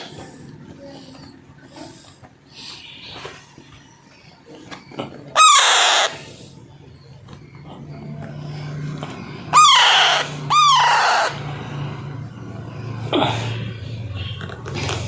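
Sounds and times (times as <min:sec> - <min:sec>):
parakeet chick squawking: 0:05.4 - 0:06.2, 0:09.5 - 0:11.6.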